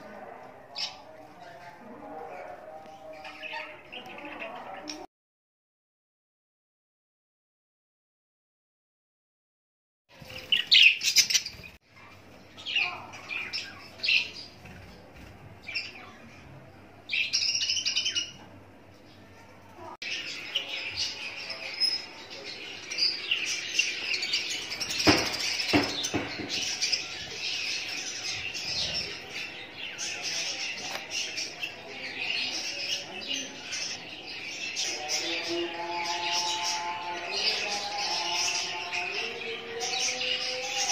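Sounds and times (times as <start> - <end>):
sharp knocks: 25.0 - 26.8.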